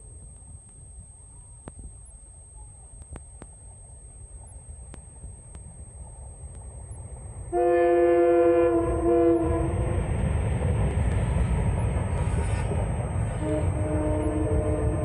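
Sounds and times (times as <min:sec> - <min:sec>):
train rumbling past: 0:00.0 - 0:15.0
locomotive air horn blast: 0:07.5 - 0:10.1, 0:12.2 - 0:15.0.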